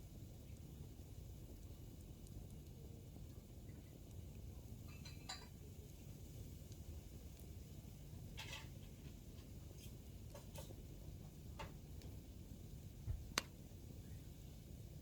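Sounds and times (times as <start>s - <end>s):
campfire burning: 0.0s - 15.0s
firewood crackling and popping: 0.0s - 15.0s.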